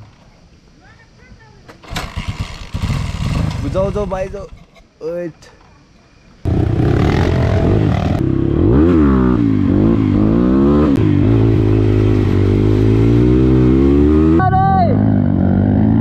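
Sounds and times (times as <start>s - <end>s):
dirt bike engine revving: 1.8s - 4.0s, 6.5s - 16.0s.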